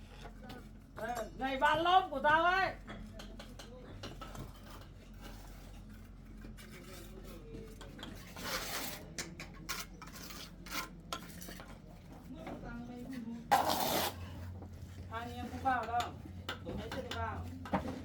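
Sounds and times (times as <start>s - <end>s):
hard objects scraping and knocking: 13.5s - 14.5s.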